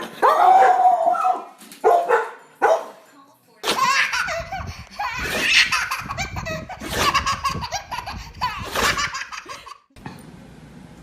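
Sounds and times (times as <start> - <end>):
baby laughing: 3.6 - 9.9.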